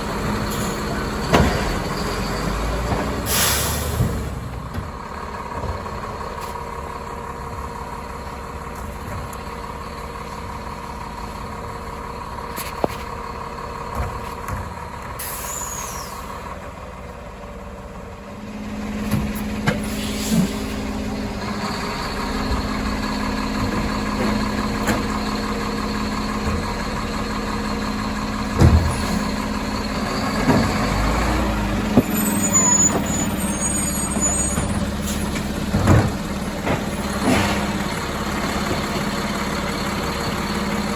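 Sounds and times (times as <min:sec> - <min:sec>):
diesel truck engine idling: 0:00.0 - 0:40.9
air brake hiss: 0:03.2 - 0:04.2, 0:15.2 - 0:16.3, 0:19.8 - 0:20.8.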